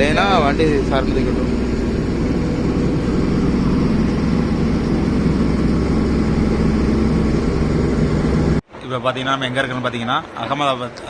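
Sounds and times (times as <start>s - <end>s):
truck diesel engine droning: 0.0s - 8.6s
road noise: 0.0s - 11.0s.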